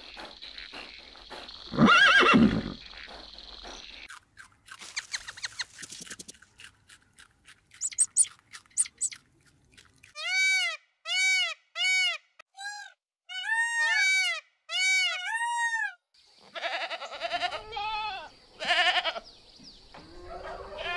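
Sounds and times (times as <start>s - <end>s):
goats bleating: 16.5s - 19.2s.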